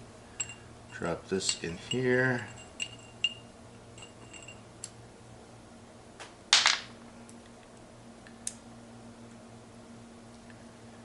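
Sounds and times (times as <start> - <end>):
faint steady hum: 0.0 - 11.0
small metal parts clinking: 0.4 - 3.4, 4.0 - 4.6.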